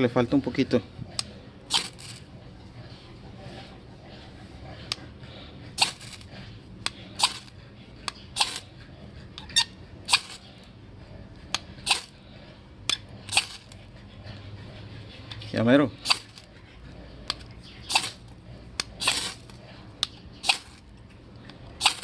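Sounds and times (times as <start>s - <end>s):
fire striker scraping: 1.1s - 2.3s, 5.8s - 8.7s, 9.4s - 10.5s, 11.5s - 12.2s, 12.9s - 13.8s, 16.0s - 16.5s, 17.3s - 22.0s.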